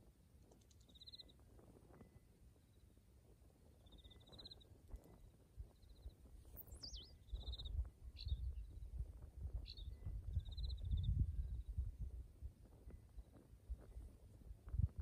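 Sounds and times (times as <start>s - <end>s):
bird trills: 6.0s - 8.6s.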